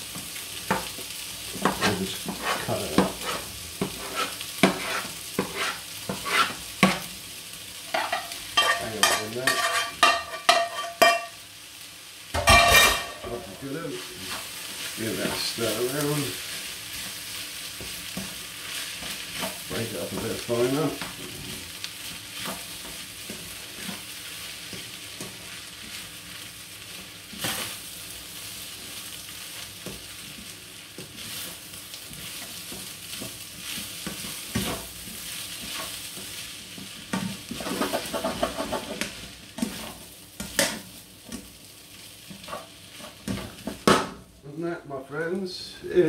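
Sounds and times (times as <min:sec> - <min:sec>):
rice sizzling in a frying pan: 0:00.0 - 0:46.0
spatula scraping through rice: 0:01.6 - 0:07.0, 0:13.9 - 0:26.1, 0:28.7 - 0:40.0
spatula clacking against pan: 0:07.9 - 0:11.4.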